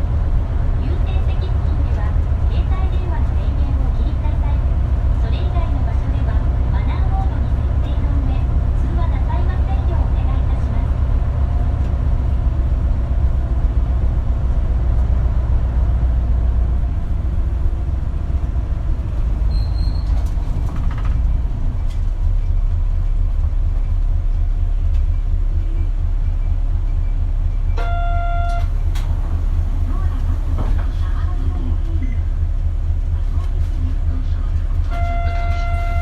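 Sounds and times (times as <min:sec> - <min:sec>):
bus engine rumble: 0:00.0 - 0:36.0
short high beep: 0:27.7 - 0:28.7.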